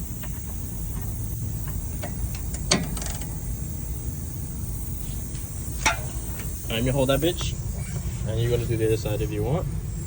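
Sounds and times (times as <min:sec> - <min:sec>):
low shop hum: 0:00.0 - 0:10.0.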